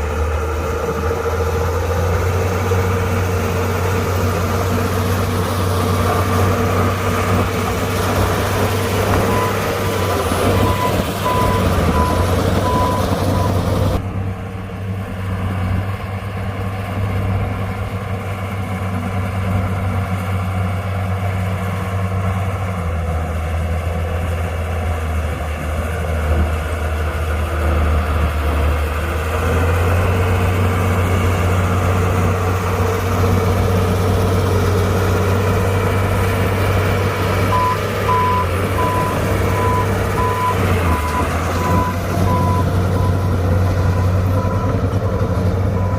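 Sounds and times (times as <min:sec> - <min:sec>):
heavy diesel engines running: 0:00.0 - 0:45.9
reversing alarm beeping: 0:09.1 - 0:13.6, 0:37.5 - 0:44.8.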